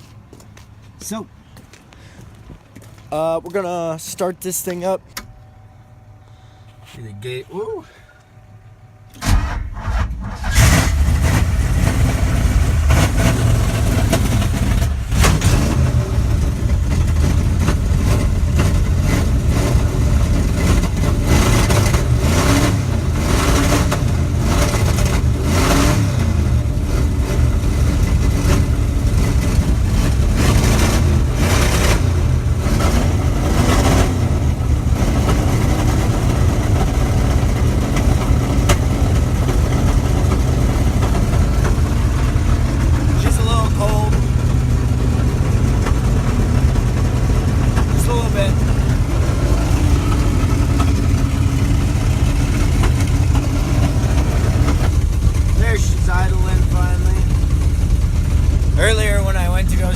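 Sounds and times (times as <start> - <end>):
truck engine running: 0.0 - 59.9
engine starter cranking: 9.1 - 11.1.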